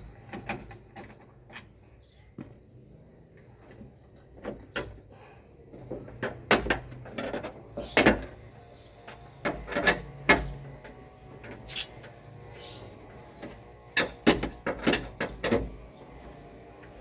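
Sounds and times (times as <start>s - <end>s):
metal parts knocking and clanking: 14.0s - 15.8s.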